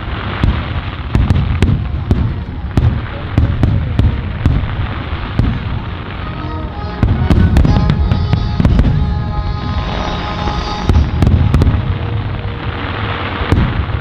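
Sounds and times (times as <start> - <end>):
fireworks booming and cracking: 0.0 - 6.2, 7.0 - 14.0
steady music-like tones: 4.2 - 14.0.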